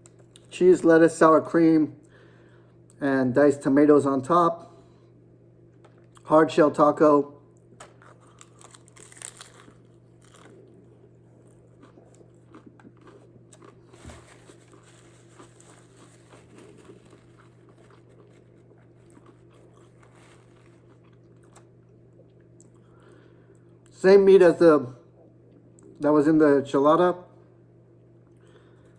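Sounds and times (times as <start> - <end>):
crunching and chewing taco shell: 0.0 - 0.6, 7.5 - 24.0.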